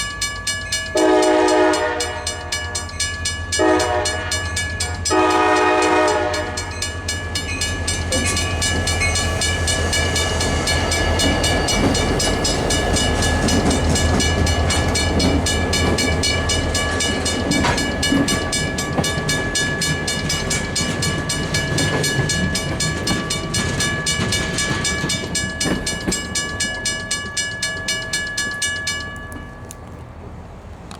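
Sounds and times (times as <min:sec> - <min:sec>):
crossing bell ringing: 0:00.0 - 0:30.0
locomotive engine rumble: 0:00.0 - 0:30.9
locomotive horn: 0:01.0 - 0:03.0, 0:03.6 - 0:07.0, 0:17.3 - 0:18.3.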